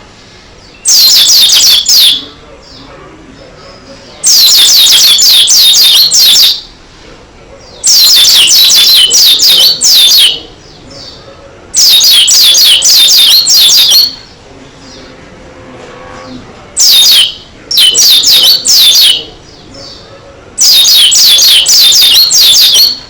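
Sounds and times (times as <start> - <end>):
bird singing rapid high notes: 0.6 - 2.8, 4.2 - 6.7, 7.8 - 11.2, 11.8 - 14.3, 16.8 - 23.0.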